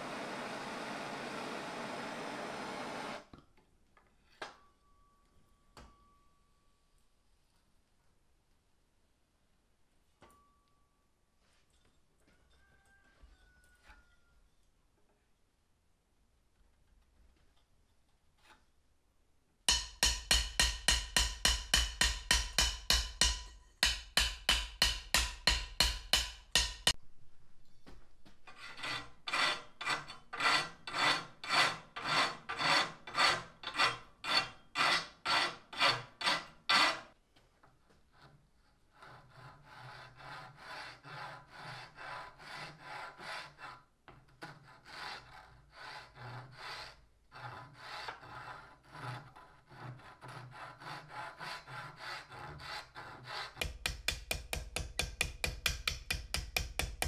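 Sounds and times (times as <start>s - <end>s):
tool rasping on wooden handle: 19.7s - 27.0s, 28.5s - 37.1s, 38.2s - 57.0s.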